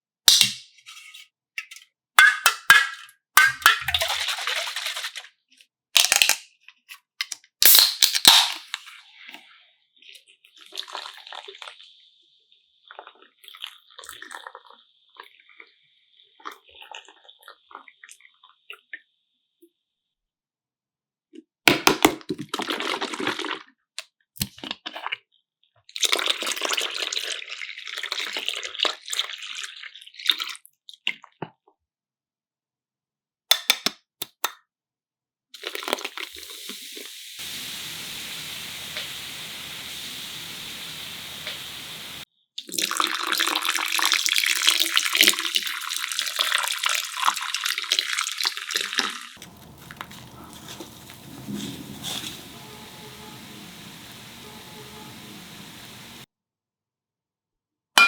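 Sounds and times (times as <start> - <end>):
liquid pouring and splashing: 3.8 - 5.2, 26.0 - 30.4, 35.6 - 56.3
sharp clicks and cracks: 6.0 - 6.4.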